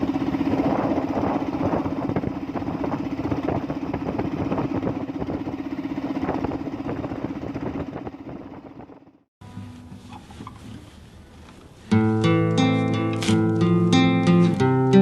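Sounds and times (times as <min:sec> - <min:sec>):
engine running steadily: 0:00.0 - 0:09.3.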